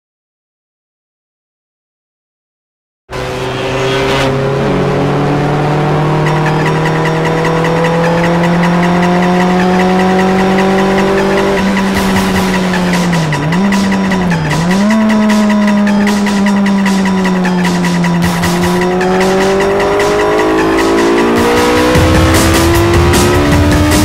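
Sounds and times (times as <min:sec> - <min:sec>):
car engine running hard: 0:03.1 - 0:24.0.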